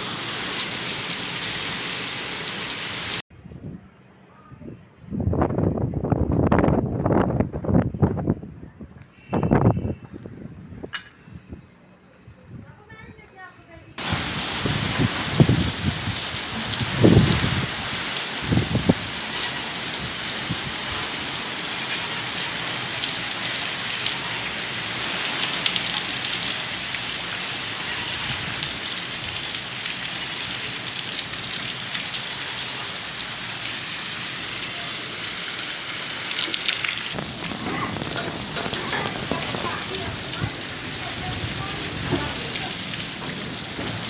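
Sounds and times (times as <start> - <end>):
heavy rain pouring: 0.0 - 3.3, 14.0 - 44.0.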